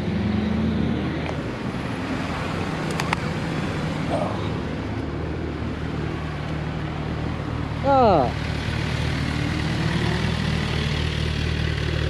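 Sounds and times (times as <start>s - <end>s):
vehicle engine idling: 10.2s - 12.0s.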